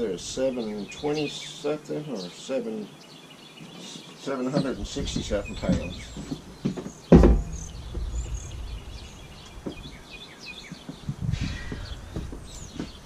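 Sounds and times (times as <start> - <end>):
small birds chirping: 0.0 - 13.0
loud thump: 6.6 - 10.0.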